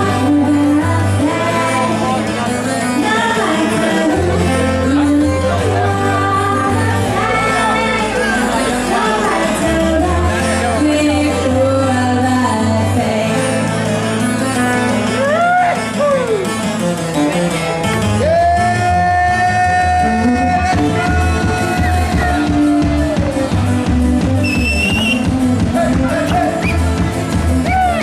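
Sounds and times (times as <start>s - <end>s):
person singing: 0.0s - 16.6s, 25.5s - 28.0s
live band playing dance song: 0.0s - 28.0s.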